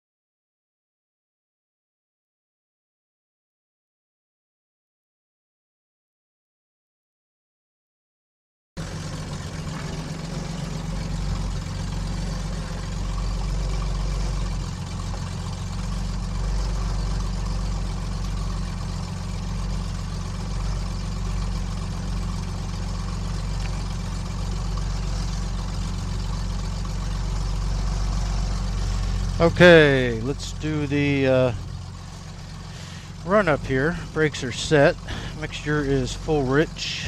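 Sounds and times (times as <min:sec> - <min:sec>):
light airplane engine and propeller: 0:08.8 - 0:37.0.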